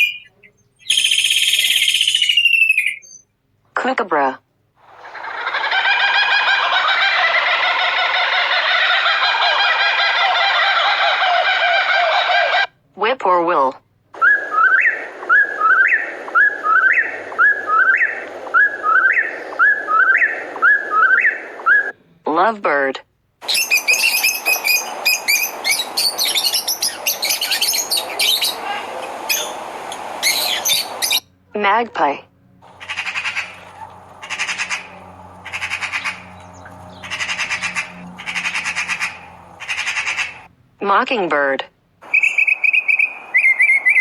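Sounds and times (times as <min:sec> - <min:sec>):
magpie chattering: 0:23.4 - 0:31.2, 0:32.6 - 0:40.5, 0:42.0 - 0:44.0.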